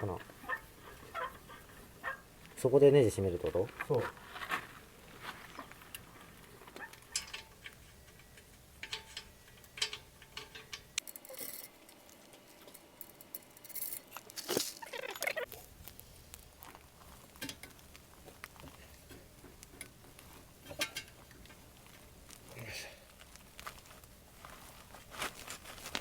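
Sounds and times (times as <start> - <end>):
metallic clicks of hand tools: 6.8 - 14.4.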